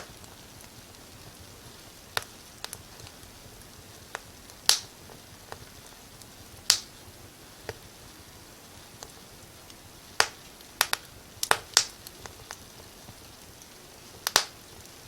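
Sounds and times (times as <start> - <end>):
faint steady hiss: 0.0 - 15.0
wood fire crackling: 0.0 - 15.0.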